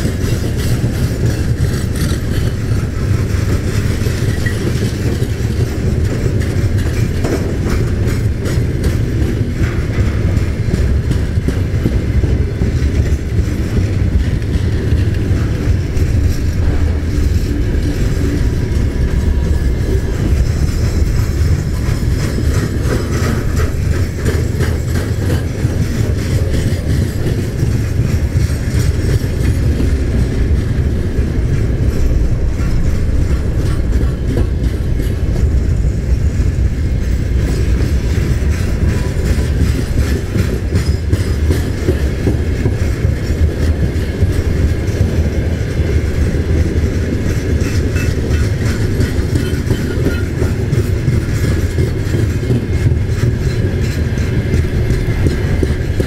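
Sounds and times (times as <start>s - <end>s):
freight train wheels rumbling: 0.0s - 56.0s
wheels clattering over rail joints: 0.0s - 56.0s.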